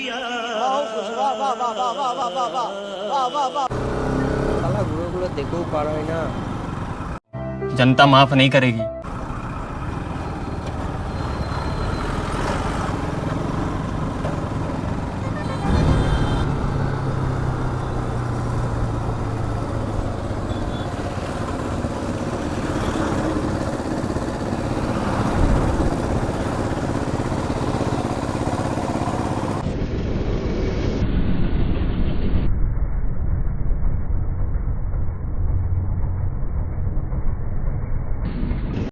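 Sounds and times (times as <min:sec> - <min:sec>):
motorcycle engine running: 0:03.7 - 0:07.2, 0:09.0 - 0:29.7
wind rushing over microphone: 0:23.4 - 0:26.7.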